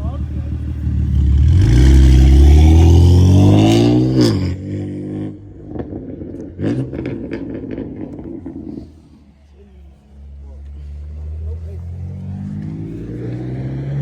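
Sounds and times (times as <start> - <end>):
car engine revving: 0.0 - 9.3, 10.6 - 14.0
exhaust pops: 5.5 - 9.1.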